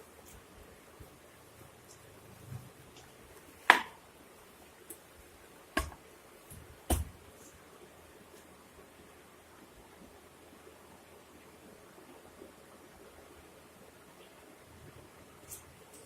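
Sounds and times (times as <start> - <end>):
dough worked by hand: 0.0 - 8.6
sharp knocks: 5.8 - 6.0, 6.9 - 7.2.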